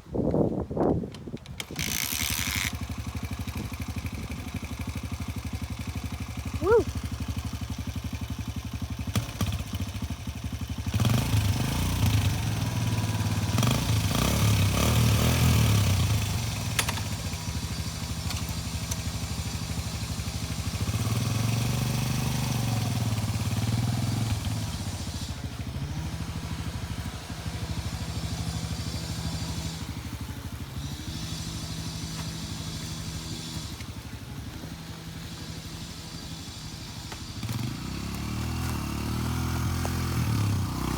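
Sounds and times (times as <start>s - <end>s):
dirt bike engine revving: 6.3s - 7.4s, 9.0s - 40.9s.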